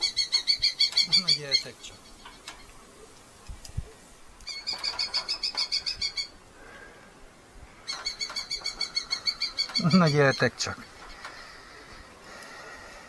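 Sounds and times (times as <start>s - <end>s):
falcon shrill repeated calls: 0.0s - 2.6s, 4.5s - 6.4s, 7.8s - 11.6s.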